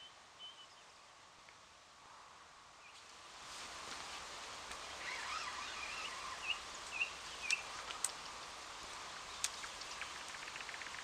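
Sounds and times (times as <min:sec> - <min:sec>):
steady outdoor hiss: 0:00.0 - 0:11.0
bird chirps: 0:05.0 - 0:07.7, 0:09.2 - 0:11.0.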